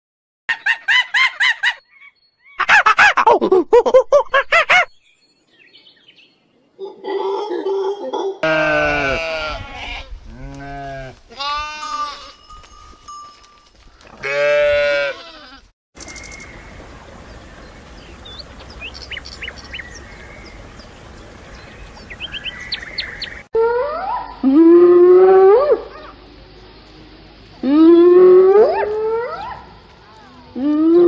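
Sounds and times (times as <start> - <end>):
sheep bleating: 8.4 - 12.4, 14.2 - 15.7
outdoor hiss: 16.0 - 23.5.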